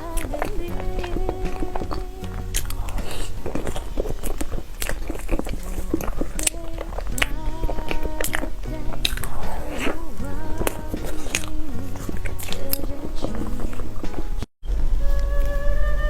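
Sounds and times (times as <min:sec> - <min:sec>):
biting and chewing cake: 0:00.2 - 0:10.0
background music with held notes: 0:05.8 - 0:16.0.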